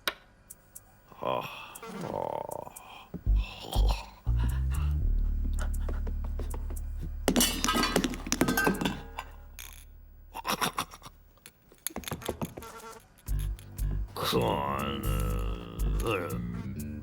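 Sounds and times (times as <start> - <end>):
objects crashing and clinking: 7.3 - 9.9.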